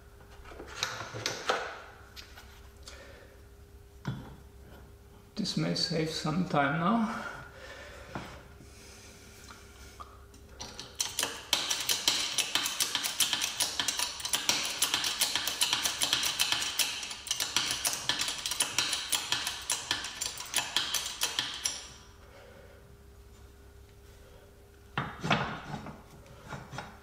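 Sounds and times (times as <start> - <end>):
hand ratchet clicking rapidly: 10.6 - 21.9.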